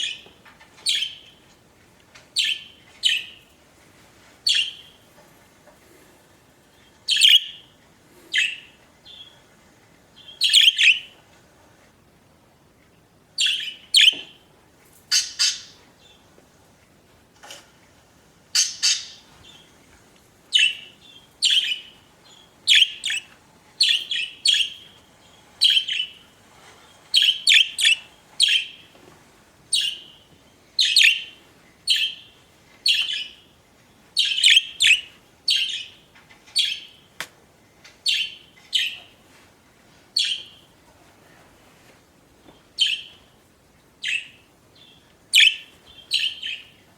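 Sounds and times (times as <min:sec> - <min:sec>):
budgerigars chirping: 0:04.5 - 0:04.9, 0:07.1 - 0:07.7, 0:10.2 - 0:11.1, 0:13.4 - 0:14.2, 0:15.1 - 0:15.8, 0:18.6 - 0:19.6, 0:20.5 - 0:25.0, 0:25.6 - 0:26.2, 0:27.2 - 0:28.8, 0:29.7 - 0:30.2, 0:30.8 - 0:32.3, 0:34.2 - 0:36.0, 0:38.1 - 0:39.1, 0:40.2 - 0:40.6, 0:42.8 - 0:43.2, 0:44.0 - 0:46.7.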